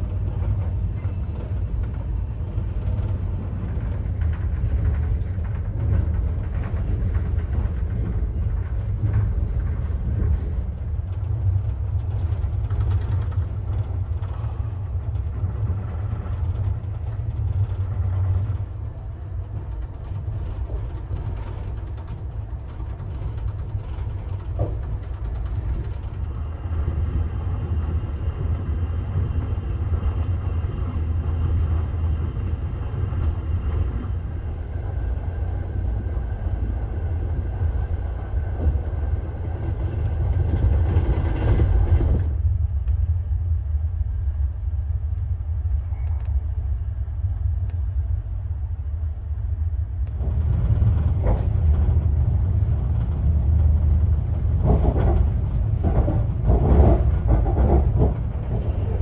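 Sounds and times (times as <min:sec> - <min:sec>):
wheels clacking over track joints: 0:00.0 - 0:34.8, 0:50.1 - 0:59.0
train wheels rumbling: 0:00.0 - 0:59.0.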